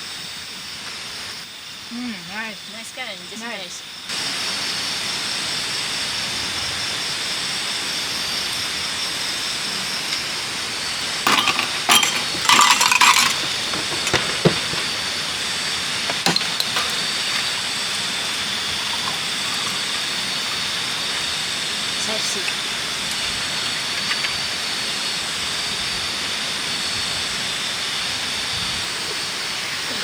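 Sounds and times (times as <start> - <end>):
running water hiss: 0.0 - 30.0
hard objects clinking and knocking: 11.3 - 17.8.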